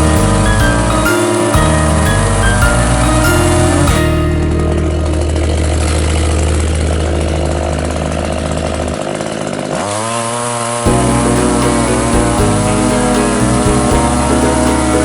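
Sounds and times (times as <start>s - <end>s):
chainsaw engine revving: 4.7s - 15.0s.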